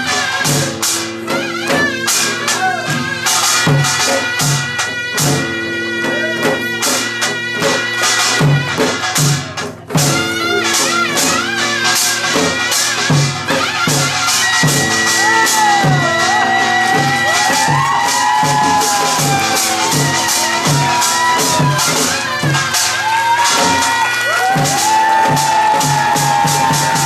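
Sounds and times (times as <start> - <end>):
low drum beats: 0.0 - 27.0
wavering melodic line: 14.7 - 23.2.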